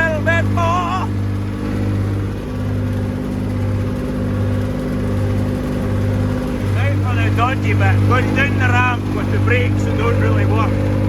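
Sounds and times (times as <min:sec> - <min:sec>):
tractor diesel engine throbbing: 0:00.0 - 0:11.0.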